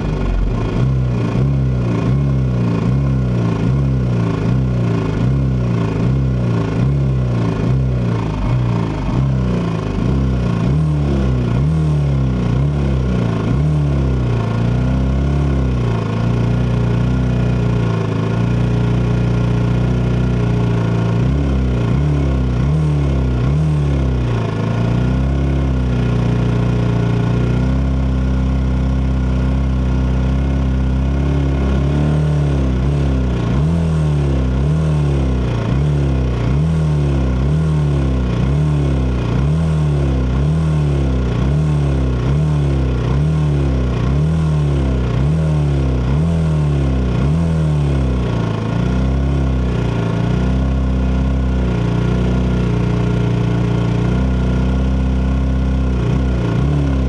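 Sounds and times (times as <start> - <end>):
motorcycle engine revving: 0.0 - 57.0
other motorcycle engines running: 0.0 - 57.0.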